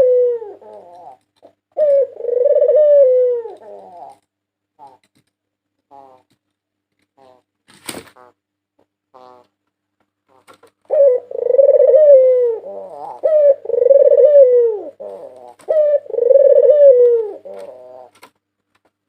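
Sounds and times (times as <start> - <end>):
dove cooing: 0.0 - 4.2, 10.3 - 18.2.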